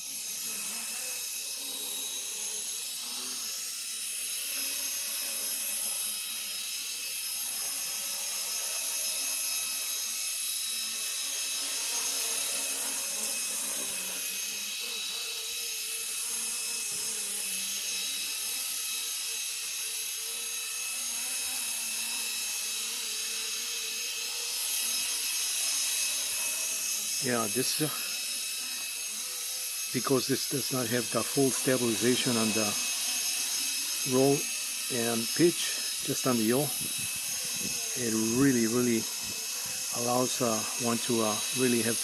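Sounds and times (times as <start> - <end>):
rc helicopter high-pitched whine: 0.0 - 42.0.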